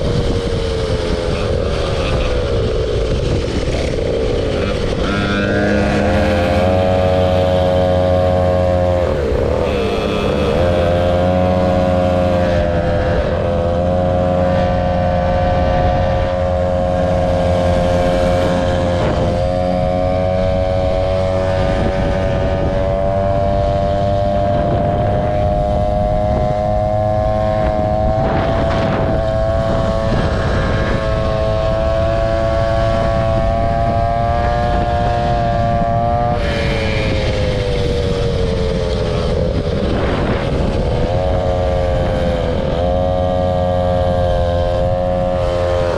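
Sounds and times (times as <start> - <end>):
scooter engine drone: 0.0 - 45.9.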